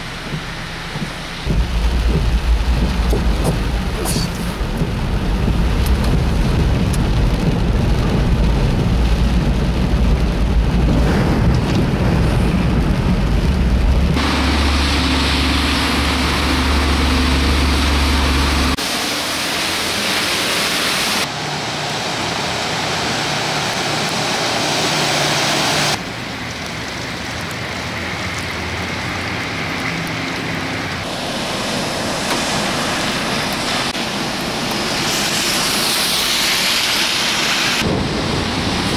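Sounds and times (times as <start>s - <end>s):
strong low rumble: 0.0s - 18.8s, 37.8s - 38.9s
heavy rain: 0.0s - 38.9s
traffic engine noise: 0.0s - 38.9s.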